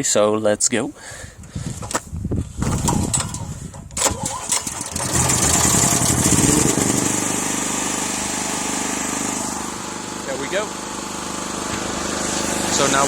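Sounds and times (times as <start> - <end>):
generator engine cranking and running: 2.6 - 13.0.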